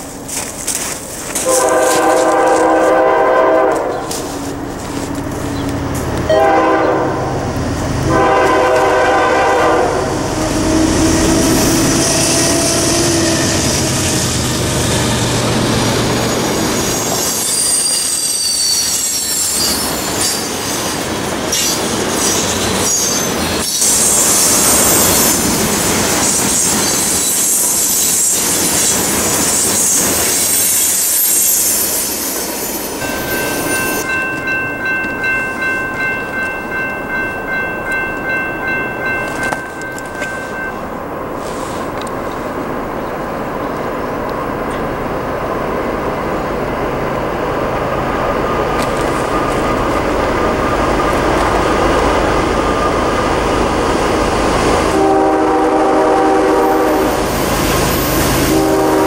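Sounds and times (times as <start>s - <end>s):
train horn blasts: 1.4s - 4.4s, 6.3s - 13.6s, 54.9s - 57.2s, 58.4s - 59.0s
train horn chord: 1.4s - 4.4s, 6.3s - 7.5s, 8.1s - 11.6s, 54.9s - 57.2s, 58.4s - 59.0s
wheels squealing: 10.4s - 25.5s, 26.1s - 35.3s.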